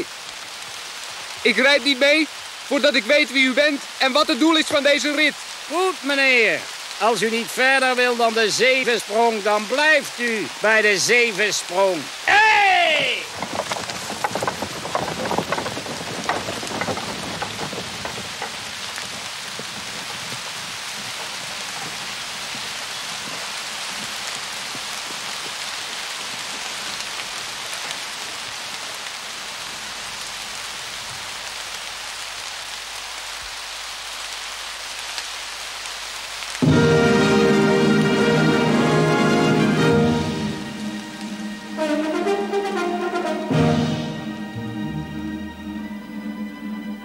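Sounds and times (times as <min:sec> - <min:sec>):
heavy rain: 0:00.0 - 0:47.0
sharp knocks: 0:13.3 - 0:22.6.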